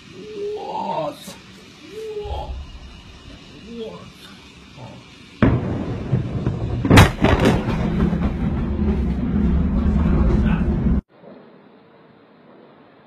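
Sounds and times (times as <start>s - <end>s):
heavy rumble of fire: 0.0s - 11.1s
explosion boom: 2.4s - 3.5s, 5.4s - 11.0s
bangs: 5.4s - 11.0s
sharp blast: 5.4s - 11.0s.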